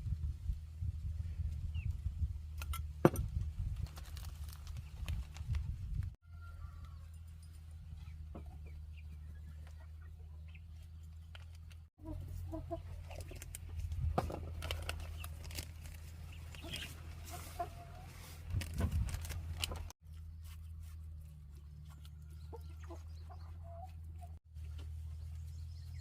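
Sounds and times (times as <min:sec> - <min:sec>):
chickens clucking: 0:12.0 - 0:13.5, 0:16.3 - 0:18.4, 0:21.7 - 0:24.4.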